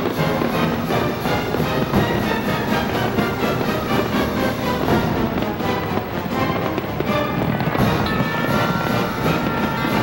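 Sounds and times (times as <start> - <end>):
fireworks booming: 0.0 - 10.0
fireworks crackling: 0.0 - 10.0.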